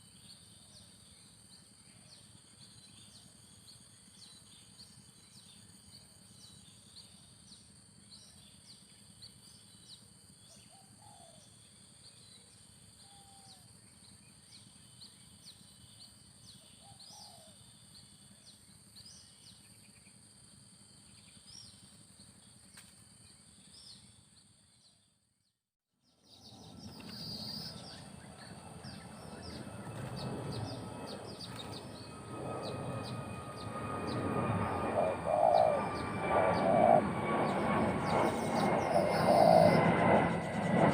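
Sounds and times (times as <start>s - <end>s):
high insect drone: 26.3s - 40.9s
high bird chirps: 26.4s - 40.8s.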